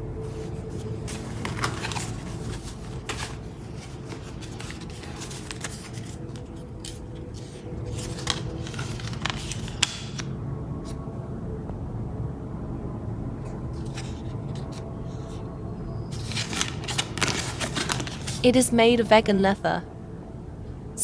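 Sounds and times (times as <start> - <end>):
low background hum: 0.0 - 21.0
packaging rustling and crinkling: 0.2 - 11.0, 13.8 - 15.4, 16.1 - 18.5.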